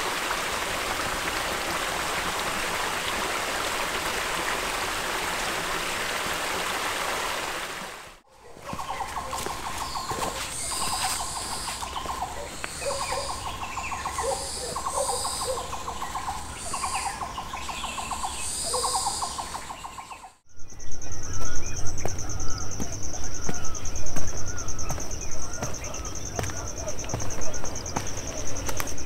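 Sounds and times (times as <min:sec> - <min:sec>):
high pulsing bird calls: 0:08.3 - 0:29.0.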